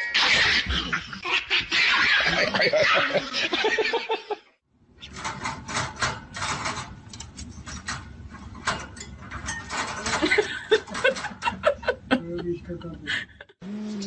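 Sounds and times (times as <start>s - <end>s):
rapid irregular clicking and rattling: 5.0s - 11.8s.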